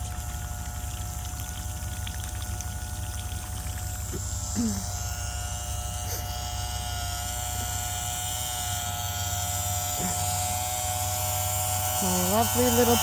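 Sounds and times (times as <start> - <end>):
electric pump humming: 0.0 - 13.0.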